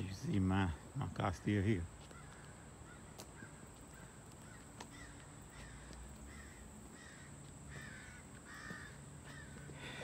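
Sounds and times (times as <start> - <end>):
faint bird calls: 2.0 - 10.0.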